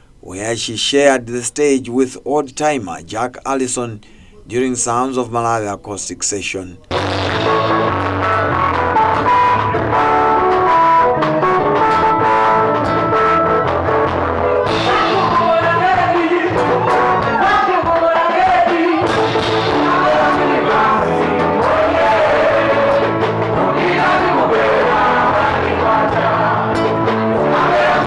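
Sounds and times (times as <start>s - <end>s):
instruments playing steady notes: 6.9s - 17.8s, 18.6s - 28.0s
person singing: 14.7s - 28.0s.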